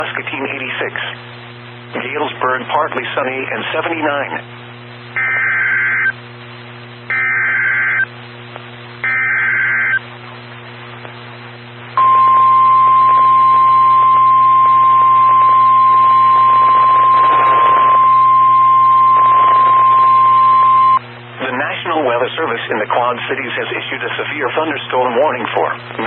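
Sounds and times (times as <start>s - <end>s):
low receiver hum: 0.0s - 26.0s
warbling data bursts: 12.0s - 21.0s.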